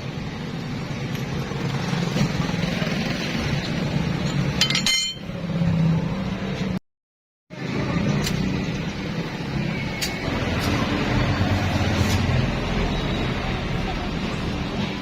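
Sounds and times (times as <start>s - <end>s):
metal clink: 4.2s - 5.3s.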